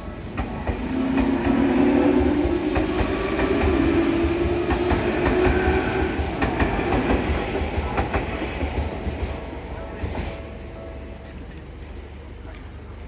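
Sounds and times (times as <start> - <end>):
train wheels clattering over rail joints: 0.0 - 9.4.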